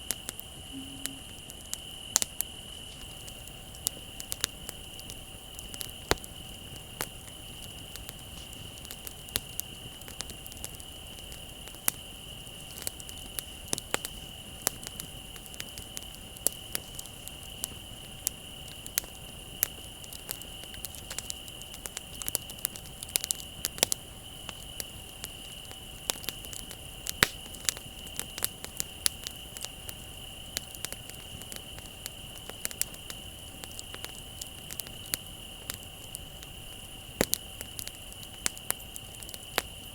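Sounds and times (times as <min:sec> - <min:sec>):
bonfire crackling and popping: 0:00.0 - 0:39.9
crickets trilling: 0:00.0 - 0:39.9.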